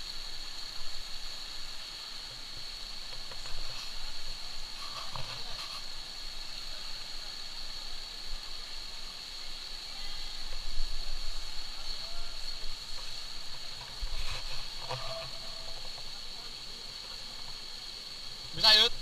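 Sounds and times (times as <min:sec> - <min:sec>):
high-pitched hiss: 0:00.0 - 0:19.0
stream water: 0:00.0 - 0:19.0
light knocks and scrapes: 0:03.0 - 0:06.0, 0:12.9 - 0:16.1.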